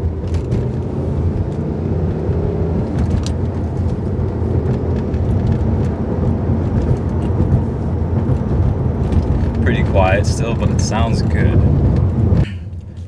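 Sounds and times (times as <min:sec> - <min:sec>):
engine and exhaust drone in cabin: 0:00.0 - 0:13.0.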